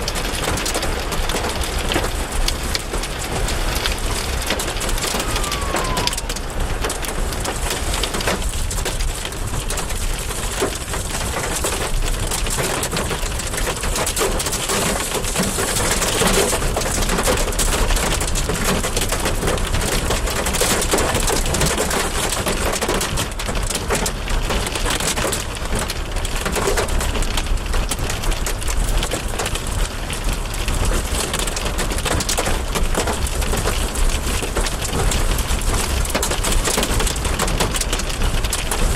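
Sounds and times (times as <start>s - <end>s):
low wind rumble: 0.0s - 11.3s
heavy rain: 0.0s - 38.9s.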